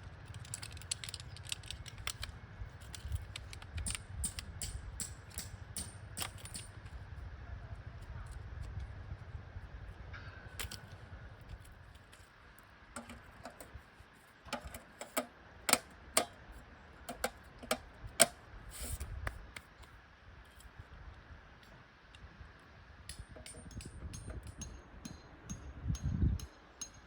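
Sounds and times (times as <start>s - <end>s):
sharp clicks and clinks: 23.1s - 27.0s.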